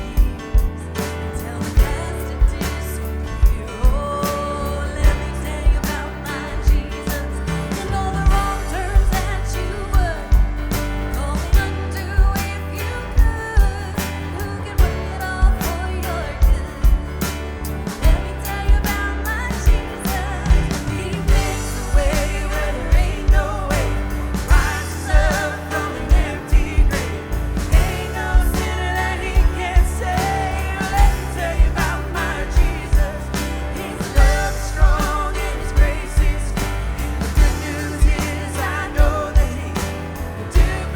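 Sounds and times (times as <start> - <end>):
steady drum beat: 0.0 - 40.9
worship band with singing: 0.0 - 40.9.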